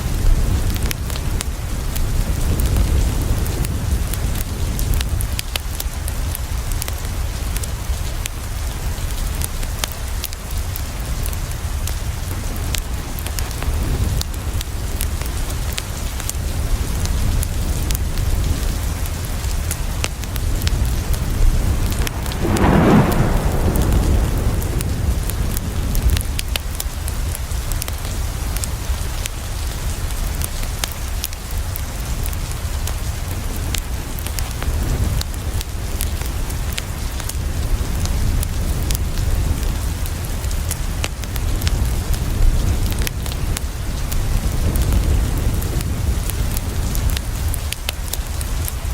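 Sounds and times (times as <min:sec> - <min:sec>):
rain on a window: 0:00.0 - 0:48.9
sharp crackles: 0:19.5 - 0:28.7
low thunder roll: 0:20.4 - 0:26.9.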